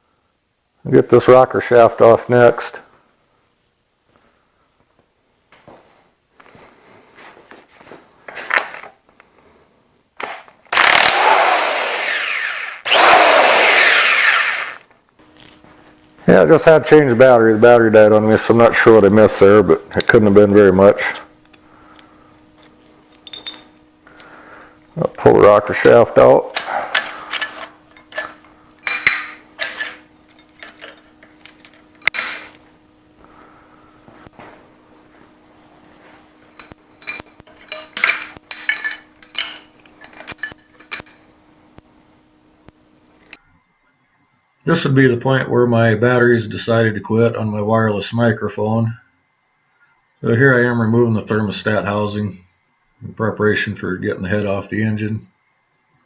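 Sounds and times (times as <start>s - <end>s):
handheld power tool running: 10.2s - 14.9s, 26.6s - 32.6s
metal tools clinking on engine: 21.4s - 23.8s, 26.6s - 32.7s, 36.4s - 41.3s.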